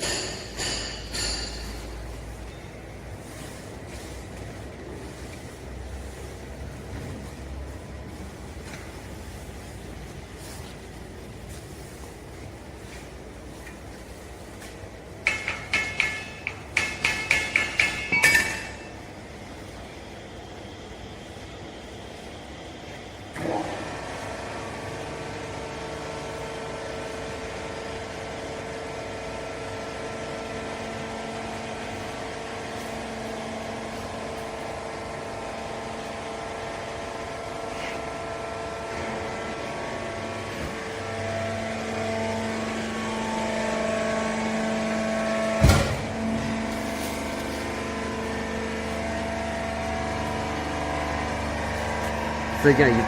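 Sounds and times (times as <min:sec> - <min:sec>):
sharp metal clank: 0:00.0 - 0:01.9
hydraulic unit humming: 0:00.0 - 0:53.0.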